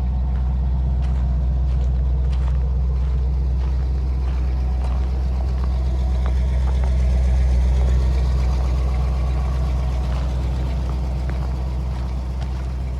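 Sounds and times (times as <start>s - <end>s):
pickup truck engine idling: 0.0s - 12.9s.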